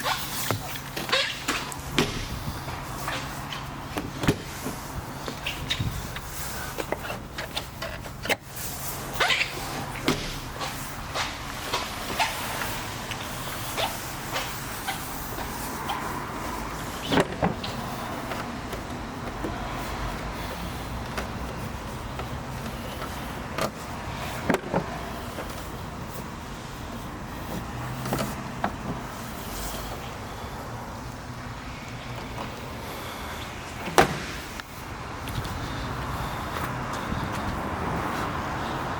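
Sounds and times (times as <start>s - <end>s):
car clicks and knocks: 0.4s - 8.5s, 17.0s - 19.7s, 24.4s - 25.6s, 33.8s - 35.5s.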